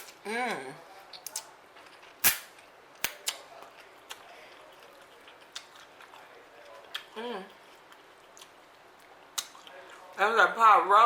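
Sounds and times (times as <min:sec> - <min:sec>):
eating clicks and smacks: 0:03.0 - 0:06.2, 0:06.8 - 0:09.8.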